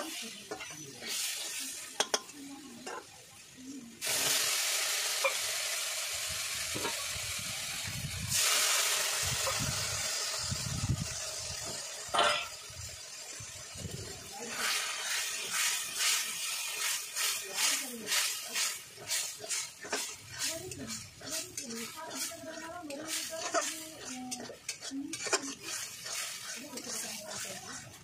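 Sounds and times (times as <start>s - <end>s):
food sizzling in hot pan: 0.0s - 28.0s
frying hiss: 0.0s - 28.0s
metal spatula scraping pan: 12.1s - 12.6s, 14.4s - 28.0s.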